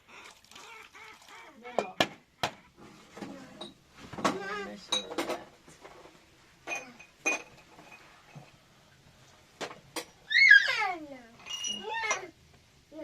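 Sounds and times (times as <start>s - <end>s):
household objects clinking: 6.6s - 8.6s, 11.3s - 12.3s.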